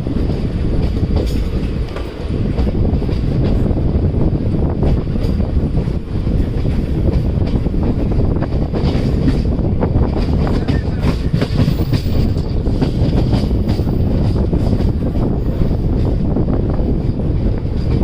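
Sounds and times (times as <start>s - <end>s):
train coaches rumbling on track: 0.0s - 18.0s
wheels clicking over rail joints: 0.2s - 3.8s.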